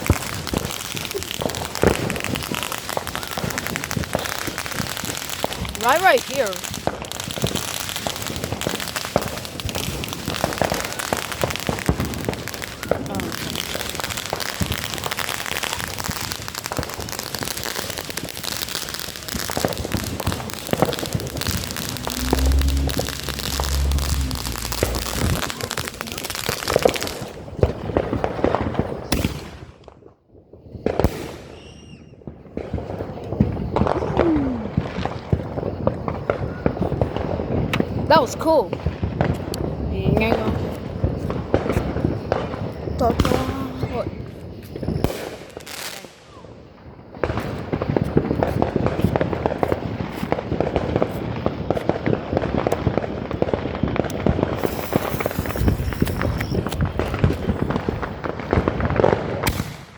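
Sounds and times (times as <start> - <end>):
firework hissing and crackling: 0.0 - 29.7, 30.5 - 59.9
falling firework whistle: 17.4 - 27.4, 31.0 - 32.3, 33.3 - 37.0, 39.3 - 46.6, 54.1 - 58.6.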